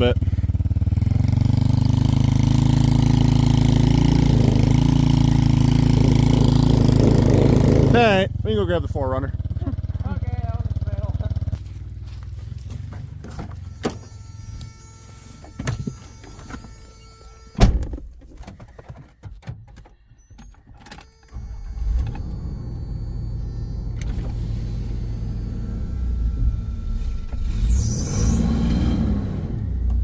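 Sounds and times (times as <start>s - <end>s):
vehicle engine starting and running: 0.0s - 30.0s
car door shutting: 13.2s - 14.2s, 15.4s - 29.0s.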